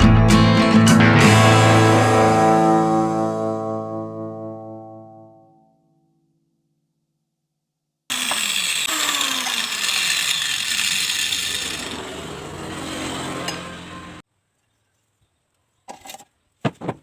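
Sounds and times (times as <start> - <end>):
angle grinder cutting: 8.1 - 14.2.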